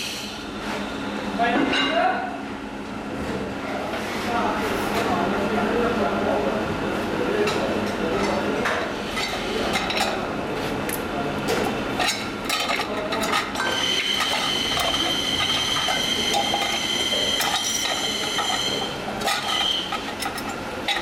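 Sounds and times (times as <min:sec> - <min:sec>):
metal parts clinking: 0:12.0 - 0:21.0
high-pitched machine whine: 0:13.4 - 0:21.0.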